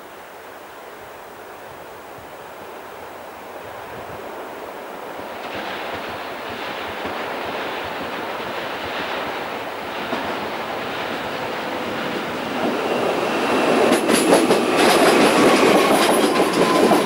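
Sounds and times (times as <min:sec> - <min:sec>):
electric train approaching: 0:03.5 - 0:17.0.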